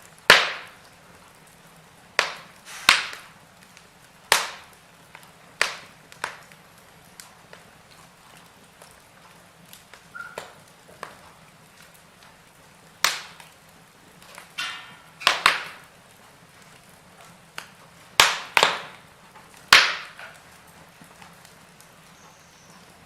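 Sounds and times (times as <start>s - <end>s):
burning logs crackling: 0.0s - 23.0s
loud sharp pops: 0.2s - 0.9s, 2.2s - 7.7s, 13.0s - 13.6s, 14.2s - 16.0s, 17.5s - 21.6s
short hiss: 2.6s - 3.3s.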